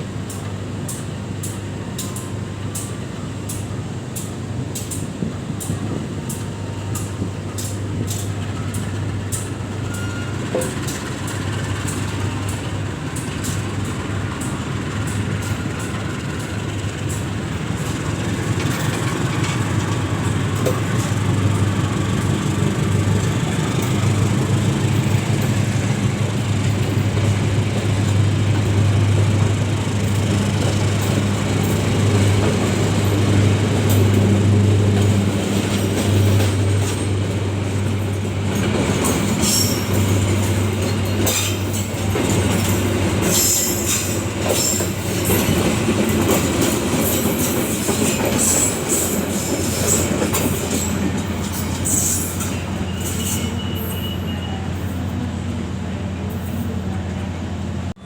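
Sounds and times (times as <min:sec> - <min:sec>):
diesel locomotive engine drone: 0:00.0 - 0:58.0
wheel squeals: 0:09.7 - 0:11.4, 0:38.5 - 0:55.3.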